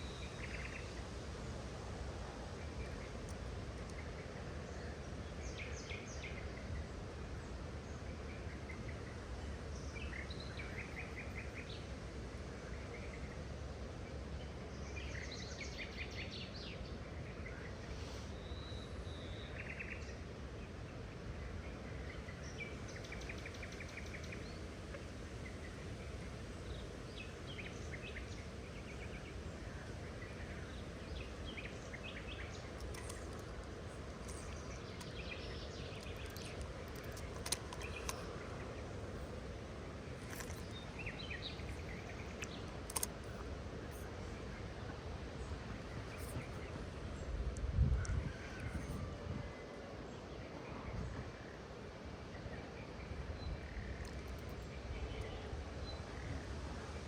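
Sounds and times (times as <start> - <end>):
low outdoor background noise: 0.0 - 57.0
birds chirping: 29.9 - 47.4
sharp clicks: 36.0 - 38.3, 42.3 - 43.4.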